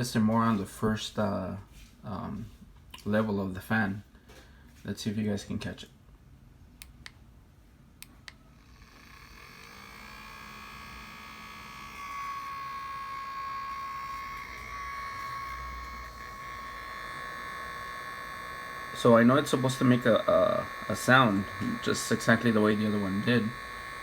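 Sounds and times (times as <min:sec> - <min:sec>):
small electric fan whirring: 0:07.8 - 0:24.0.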